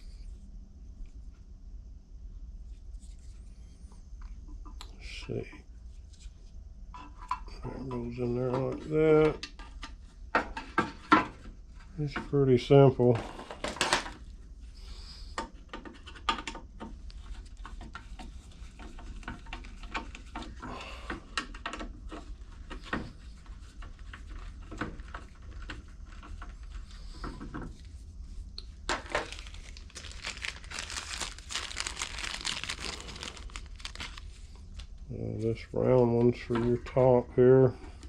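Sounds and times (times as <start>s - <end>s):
crinkling: 21.5s - 35.7s.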